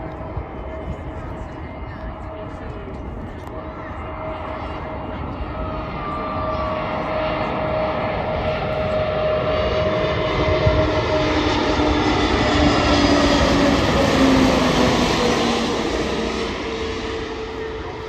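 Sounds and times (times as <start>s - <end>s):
jet airliner engines rushing: 0.0s - 18.0s.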